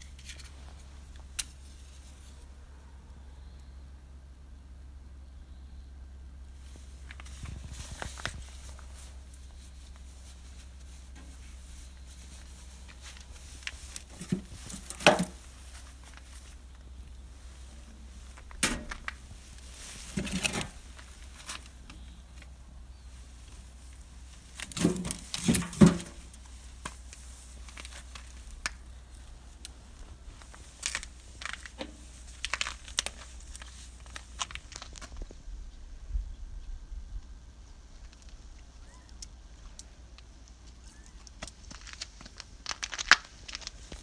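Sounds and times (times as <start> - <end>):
steady low hum: 0.0 - 42.6
knocks and rustling: 11.1 - 16.6, 18.2 - 21.7, 24.5 - 27.0.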